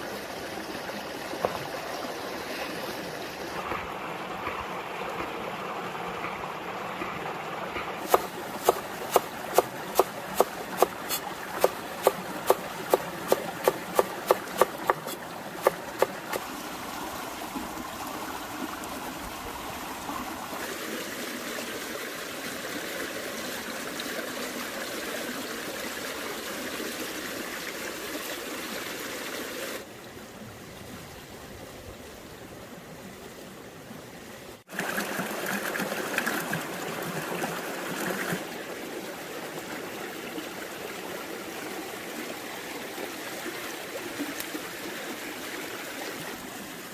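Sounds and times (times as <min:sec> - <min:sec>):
trickling stream: 0:00.0 - 0:46.9
knife chopping on cutting board: 0:08.1 - 0:16.2.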